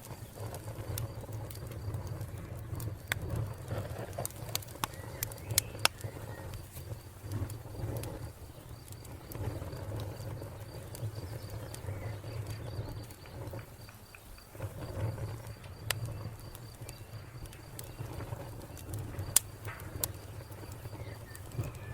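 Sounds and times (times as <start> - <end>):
wood fire crackling and popping: 0.0 - 21.9
crickets chirping: 0.1 - 21.9.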